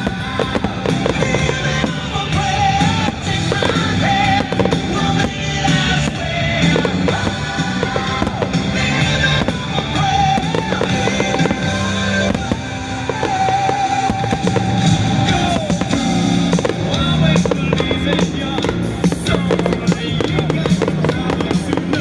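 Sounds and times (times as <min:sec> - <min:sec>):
fireworks bursting and crackling: 0:00.0 - 0:22.0
rock music: 0:00.0 - 0:22.0.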